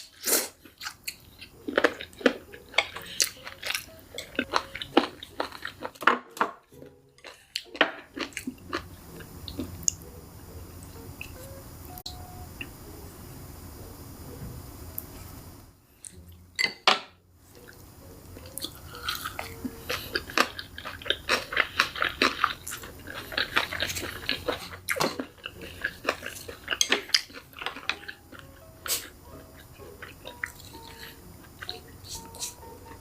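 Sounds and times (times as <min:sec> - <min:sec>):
crunchy food chewing: 0:00.2 - 0:06.1, 0:07.2 - 0:10.0, 0:18.4 - 0:32.6.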